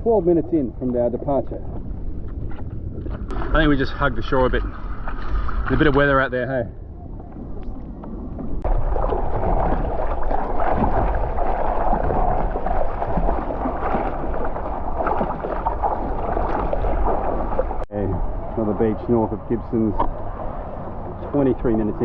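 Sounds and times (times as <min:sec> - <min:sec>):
wind buffeting microphone: 0:00.0 - 0:22.0
water splashing against a boat: 0:03.0 - 0:06.5, 0:07.1 - 0:22.0.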